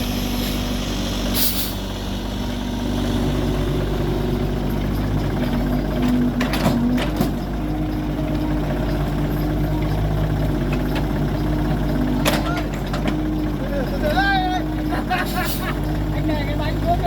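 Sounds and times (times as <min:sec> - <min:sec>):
machine engine running: 0:00.0 - 0:17.0.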